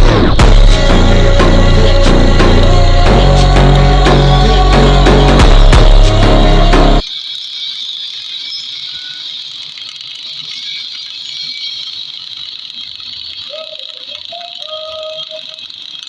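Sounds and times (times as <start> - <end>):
loud music: 0.0 - 7.0
welding arc crackling: 0.0 - 16.0.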